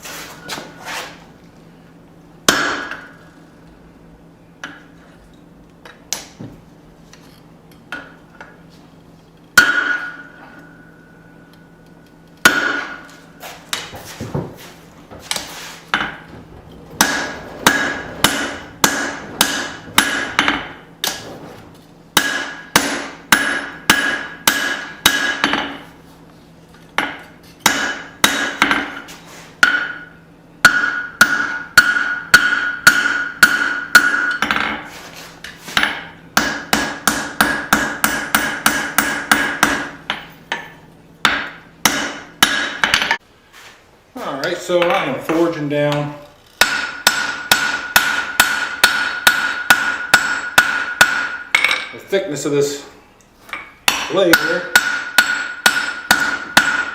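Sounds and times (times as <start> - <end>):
hammer striking steel on anvil: 2.5 - 3.3, 9.6 - 11.7, 12.4 - 13.8, 17.0 - 21.2, 22.2 - 25.8, 27.0 - 34.9, 35.8 - 43.2, 46.6 - 52.0, 53.5 - 56.9
anvil ringing: 9.6 - 11.3, 17.0 - 20.9, 53.6 - 56.9.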